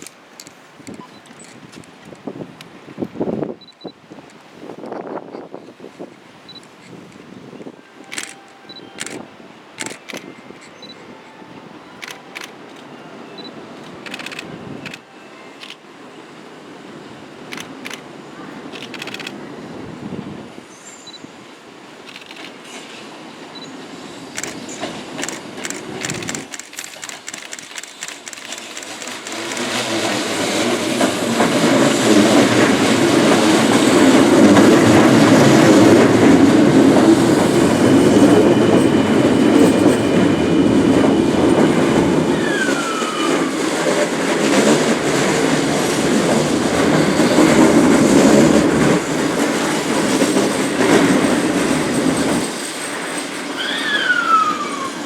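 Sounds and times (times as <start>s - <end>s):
train wheels clacking over rail joints: 9.8s - 10.8s, 18.7s - 19.4s, 24.3s - 54.1s
train cars rumbling past: 15.8s - 55.0s
high brake squeal: 42.3s - 43.6s, 52.4s - 55.0s.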